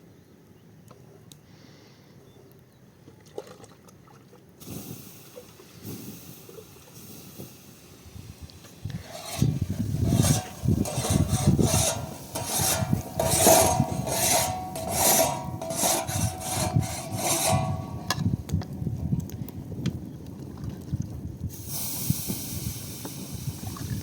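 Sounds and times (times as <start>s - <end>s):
rhythmic rasping strokes: 8.9s - 18.5s.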